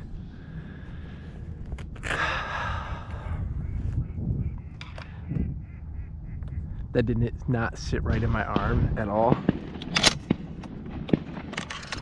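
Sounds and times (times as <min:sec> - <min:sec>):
steady low rumble: 0:00.0 - 0:12.0
person exhaling breathily: 0:02.0 - 0:03.6.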